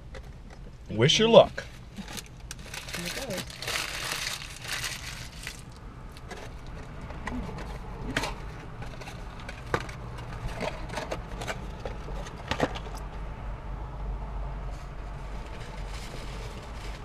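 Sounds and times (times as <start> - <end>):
low steady hum: 0.0 - 17.0
crunching and chewing: 1.8 - 13.1.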